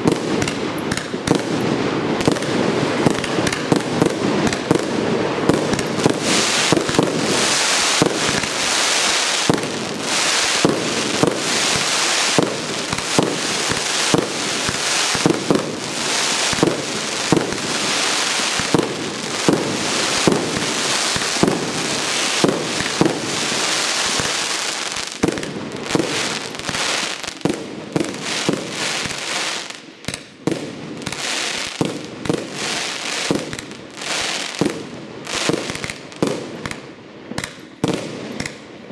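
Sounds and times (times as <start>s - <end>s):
firework launch thumps: 0.0s - 4.9s, 5.5s - 30.4s, 37.4s - 38.7s
crackling hiss of fireworks: 0.0s - 38.9s.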